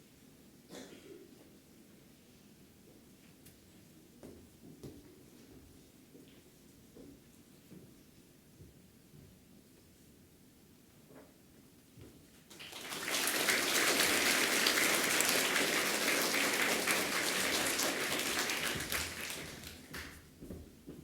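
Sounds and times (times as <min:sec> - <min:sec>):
audience clapping: 0:12.5 - 0:20.3.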